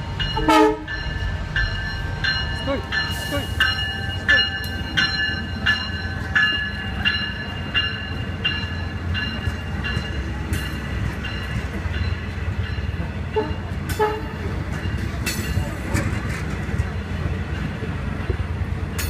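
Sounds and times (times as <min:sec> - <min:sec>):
train low rumble: 0:00.0 - 0:19.0
bell striking: 0:00.2 - 0:13.7.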